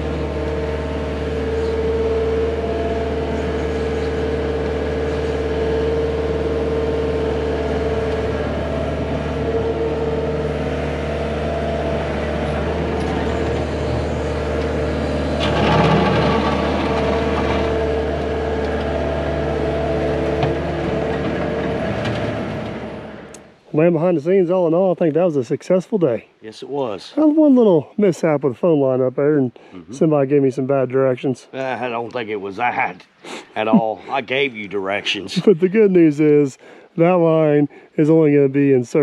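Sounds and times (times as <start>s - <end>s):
diesel engine under load: 0.0s - 23.7s.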